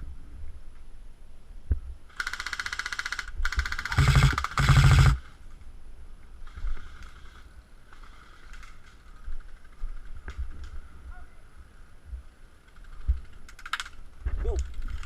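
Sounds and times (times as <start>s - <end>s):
airsoft rifle full-auto bursts: 2.1s - 5.3s.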